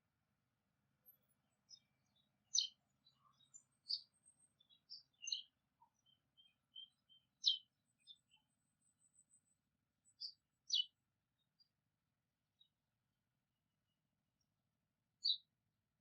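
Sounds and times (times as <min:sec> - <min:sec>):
wild birds chirping: 0:01.0 - 0:11.7, 0:15.2 - 0:15.5.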